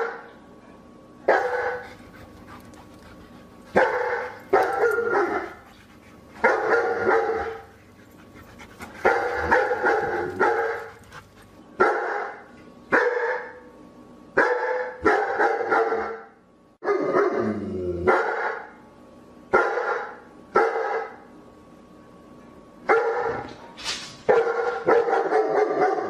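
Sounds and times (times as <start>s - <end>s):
dog barking: 1.3s - 1.9s, 3.7s - 5.6s, 6.4s - 7.7s, 9.0s - 11.0s, 11.8s - 13.6s, 14.4s - 17.4s, 18.1s - 18.7s, 19.5s - 21.2s, 22.9s - 23.5s, 24.3s - 26.0s.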